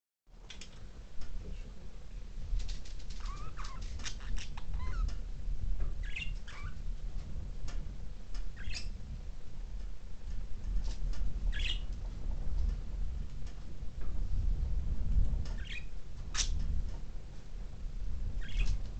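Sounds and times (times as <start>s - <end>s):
steady low rumble: 0.4s - 18.9s
budgerigars chirping: 3.2s - 5.1s, 6.0s - 6.8s, 8.6s - 8.9s, 11.5s - 11.8s, 18.4s - 18.7s.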